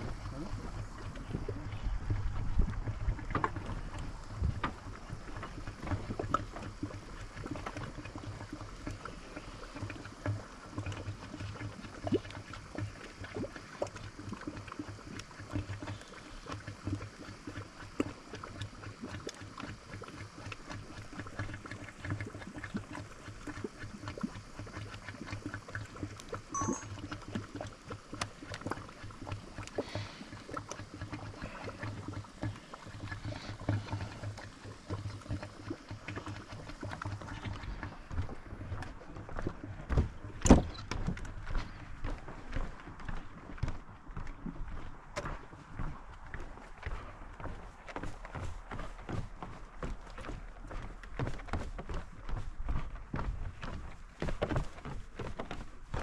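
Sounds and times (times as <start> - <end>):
steady low hum: 0.0 - 13.8
liquid bubbling and sloshing: 0.0 - 56.0.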